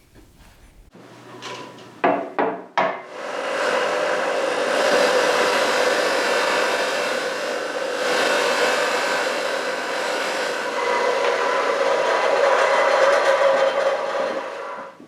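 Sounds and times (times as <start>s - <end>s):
small electric motor whirring: 3.7s - 15.0s.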